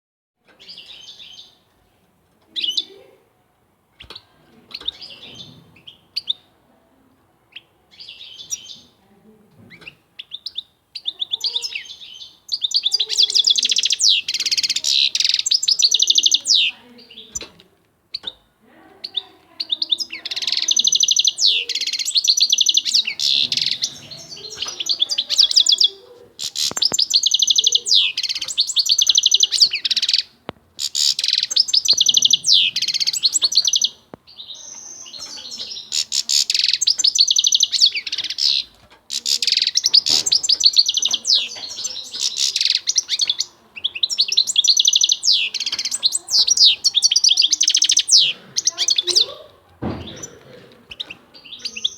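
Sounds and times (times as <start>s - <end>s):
goldfinch twittering and trilling: 9.8s - 17.4s, 19.0s - 49.3s, 50.9s - 51.9s.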